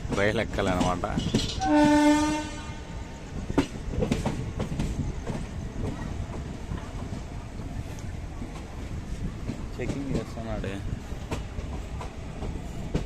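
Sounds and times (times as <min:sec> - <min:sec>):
train rumbling: 0:00.0 - 0:13.0
train horn blast: 0:01.6 - 0:02.9.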